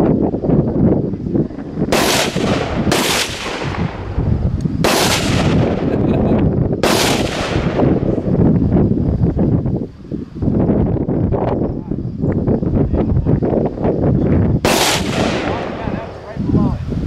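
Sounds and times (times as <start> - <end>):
steady low rumble: 0.0 - 17.0
rifle shots echoing: 1.9 - 4.1, 4.8 - 5.9, 6.8 - 8.1, 14.6 - 16.3.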